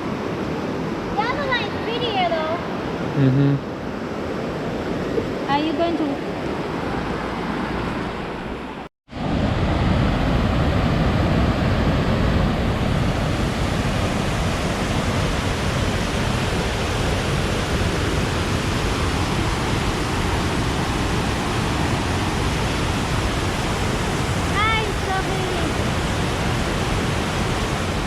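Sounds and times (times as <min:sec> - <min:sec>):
river rushing over rapids: 0:09.2 - 0:28.0.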